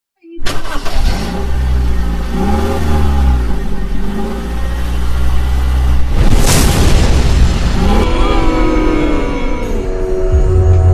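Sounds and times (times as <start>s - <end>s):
vehicle engine starting and revving: 0.4s - 6.4s.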